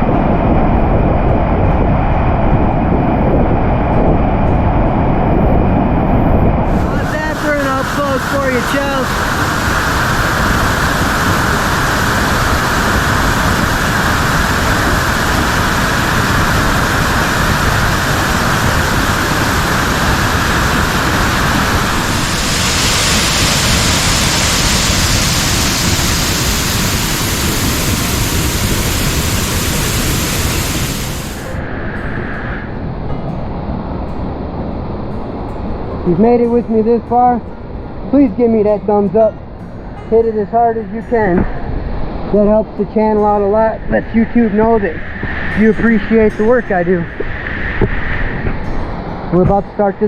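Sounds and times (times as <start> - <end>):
waterfall rushing: 6.6 - 31.8
pouring rain: 6.7 - 31.6.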